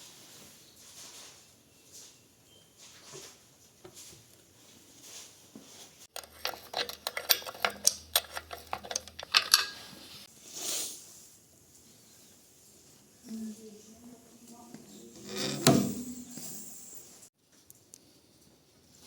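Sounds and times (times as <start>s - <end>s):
metallic clicks and clinks: 6.1s - 9.9s
short hiss: 10.4s - 11.1s.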